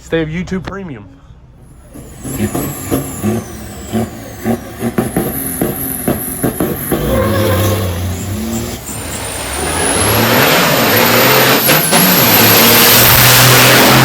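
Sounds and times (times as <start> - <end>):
truck engine running hard: 1.6 - 14.0
high whistle: 1.7 - 13.3.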